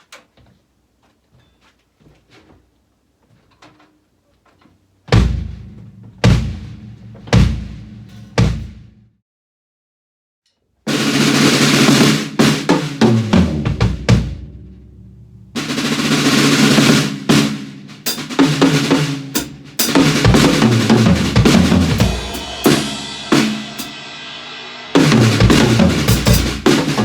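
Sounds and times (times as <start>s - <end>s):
drum kit grooves and fills: 5.1s - 9.1s, 10.9s - 27.0s
cymbal crashes: 21.3s - 27.0s.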